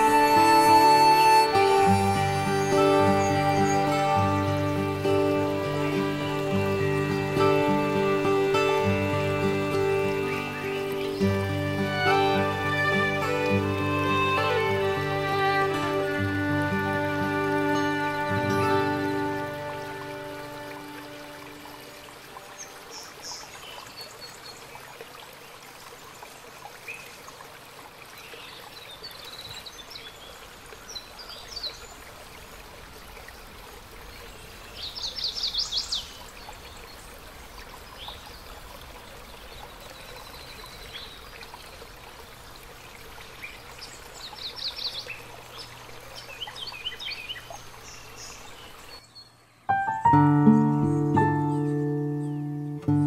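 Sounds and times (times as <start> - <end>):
birds singing: 0.0 - 21.8, 34.0 - 37.2, 43.3 - 53.0
background hiss: 0.0 - 53.0.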